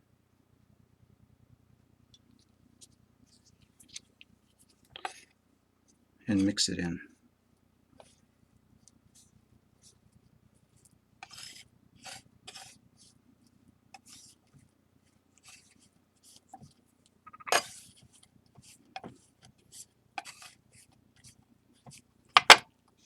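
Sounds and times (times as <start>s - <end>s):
tool scraping paste on tray: 11.2s - 12.8s, 20.2s - 20.6s.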